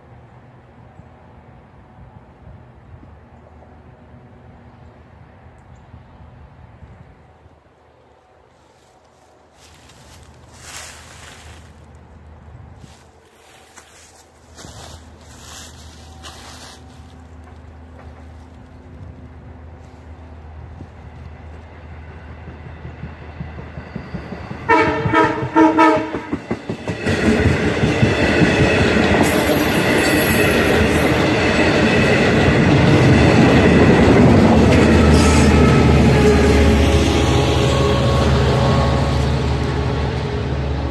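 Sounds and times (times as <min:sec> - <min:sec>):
train running noise: 0:00.0 - 0:40.9
train horn blasts: 0:24.6 - 0:26.4, 0:34.8 - 0:40.9.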